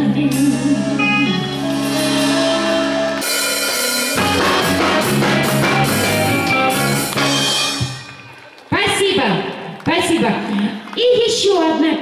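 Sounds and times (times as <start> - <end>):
live band playing: 0.0 - 9.0.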